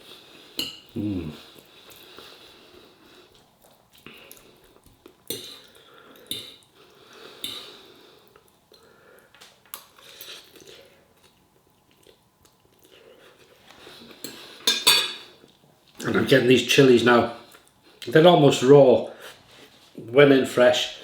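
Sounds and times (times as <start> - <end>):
cutlery clinking on a dish: 14.2 - 15.3.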